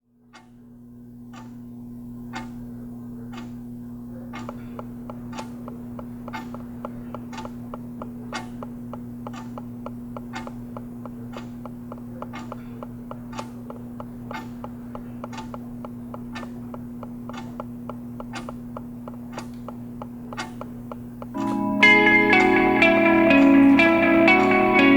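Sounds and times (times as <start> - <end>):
low electrical hum: 0.0 - 24.9
clock ticking: 0.3 - 0.6, 1.2 - 24.9
faster lighter ticks: 4.4 - 21.4.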